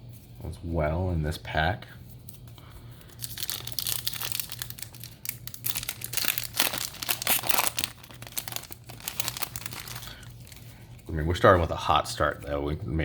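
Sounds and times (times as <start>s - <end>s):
foil wrapper crinkling: 3.0s - 11.6s.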